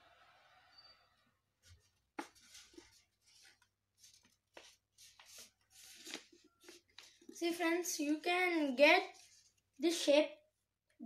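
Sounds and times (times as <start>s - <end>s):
paper rustling and crinkling: 1.8s - 7.5s.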